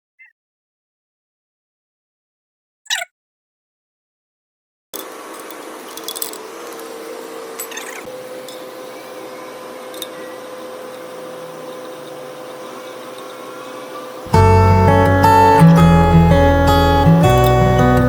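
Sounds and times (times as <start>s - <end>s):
mechanical hum: 5.0s - 18.0s
strummed acoustic guitar music: 14.2s - 18.0s.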